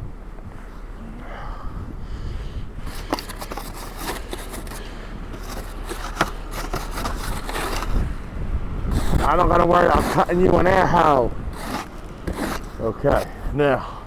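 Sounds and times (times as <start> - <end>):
shovel crunching in snow: 2.8 - 8.1, 8.9 - 13.4.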